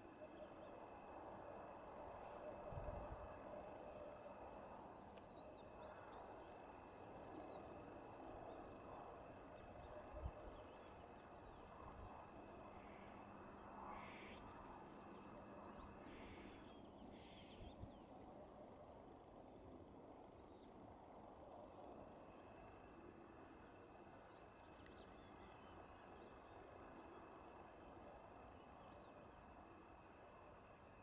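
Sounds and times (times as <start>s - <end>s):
low outdoor hiss: 0.0s - 31.0s.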